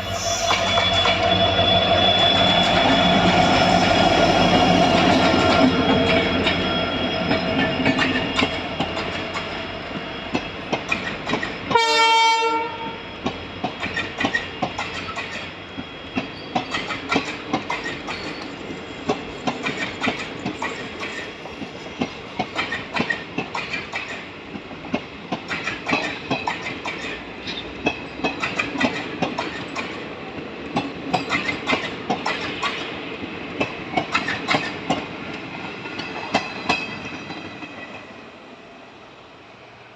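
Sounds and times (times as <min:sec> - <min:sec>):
train horn blast: 0:00.0 - 0:03.8, 0:11.7 - 0:13.0
faint wheel squeal: 0:00.0 - 0:08.6
clickety-clack of train wheels: 0:00.5 - 0:38.2.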